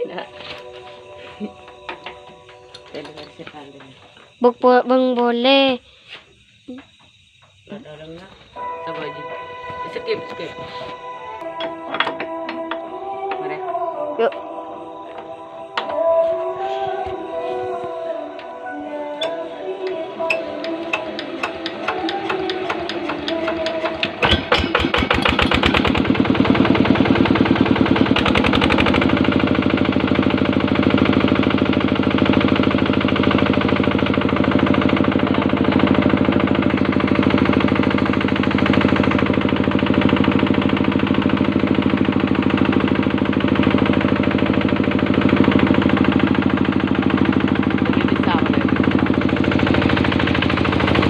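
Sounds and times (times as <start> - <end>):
diesel engine starting and running: 18.7 - 51.0.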